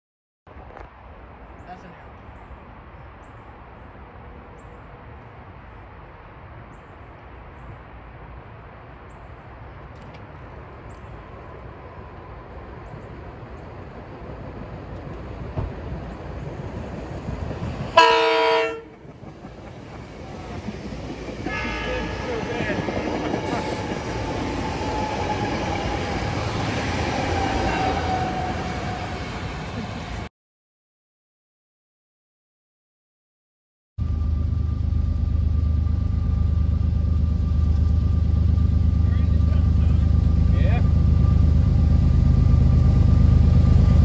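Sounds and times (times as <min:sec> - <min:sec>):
train wheels rumbling on rails: 0:09.8 - 0:30.3, 0:34.0 - 0:44.0
train horn blast: 0:17.9 - 0:19.0, 0:21.4 - 0:22.6.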